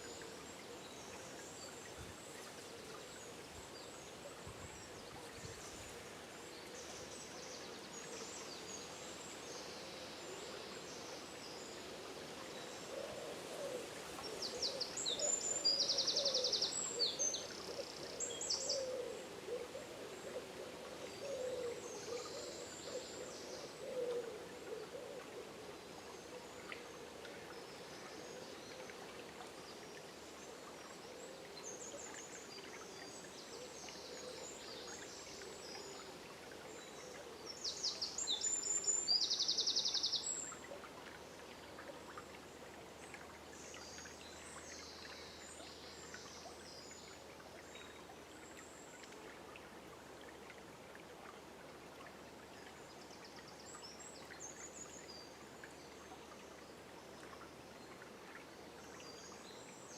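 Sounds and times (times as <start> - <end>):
river flowing: 0.0 - 59.9
songbirds calling: 12.5 - 25.4.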